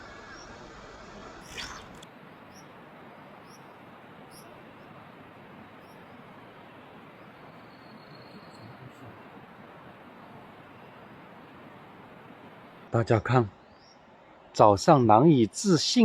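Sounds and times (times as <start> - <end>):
faint high chirps: 7.2 - 9.1.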